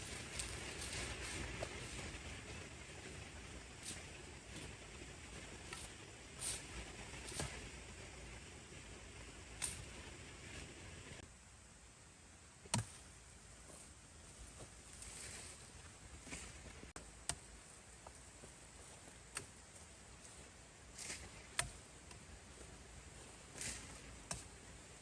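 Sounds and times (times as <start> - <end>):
soft rustling: 0.0 - 8.0, 13.0 - 17.0, 17.6 - 25.0.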